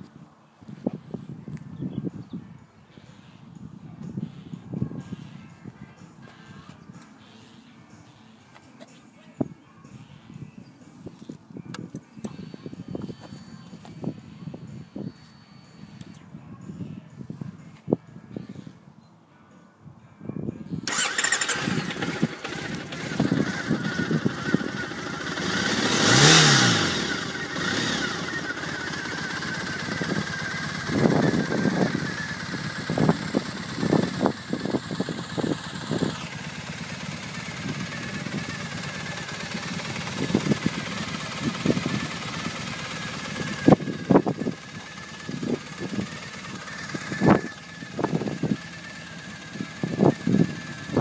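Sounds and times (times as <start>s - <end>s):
motorcycle engine idling: 20.8s - 51.0s
engine revving: 20.9s - 51.0s.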